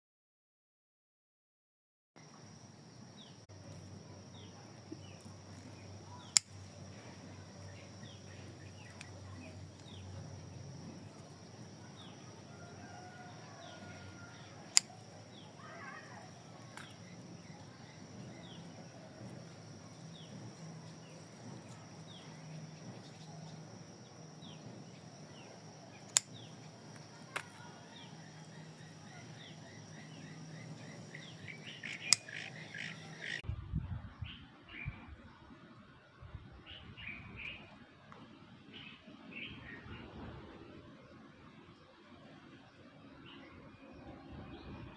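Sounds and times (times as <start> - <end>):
birds chirping: 2.2 - 33.4
low steady hum: 2.2 - 34.1
sharp clicks: 14.7 - 15.0, 26.1 - 27.6, 31.8 - 32.9.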